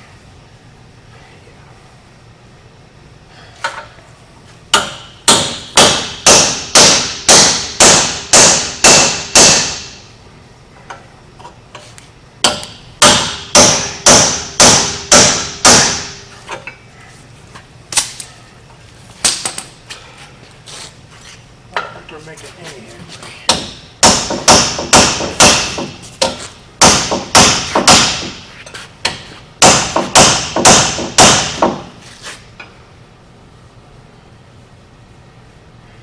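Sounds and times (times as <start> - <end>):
hammer striking metal: 4.7 - 10.0, 12.4 - 16.2, 23.5 - 28.4, 29.0 - 31.9.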